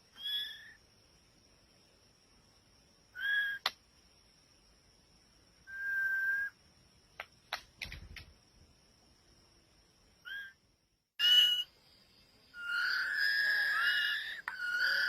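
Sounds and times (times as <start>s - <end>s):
bird whistled notes: 11.2s - 11.7s.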